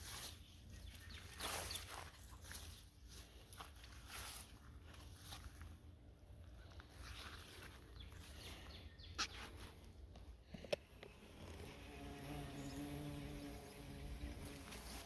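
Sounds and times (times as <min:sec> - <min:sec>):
bees buzzing in flight: 0:11.2 - 0:15.0.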